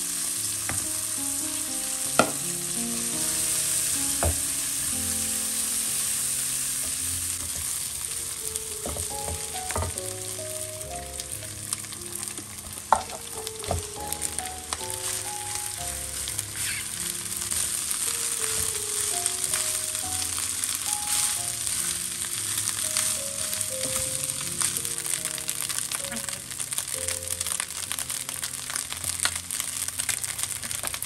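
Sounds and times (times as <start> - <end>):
food sizzling in oil: 0.0 - 31.0.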